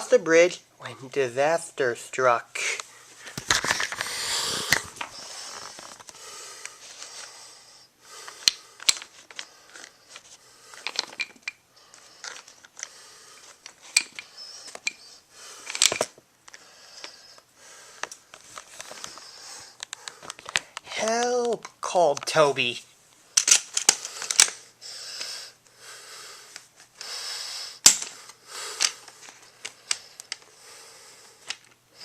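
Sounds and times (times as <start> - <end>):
plastic toy pieces clattering: 3.4 - 6.0, 10.8 - 11.6, 13.6 - 15.0, 15.7 - 16.2, 23.4 - 24.6.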